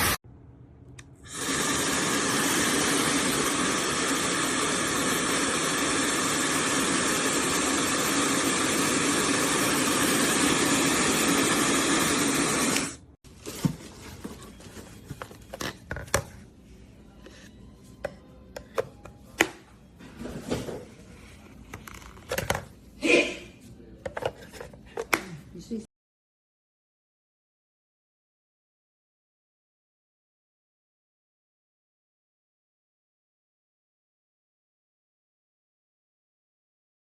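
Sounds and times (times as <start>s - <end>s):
hair dryer running: 1.3s - 13.1s.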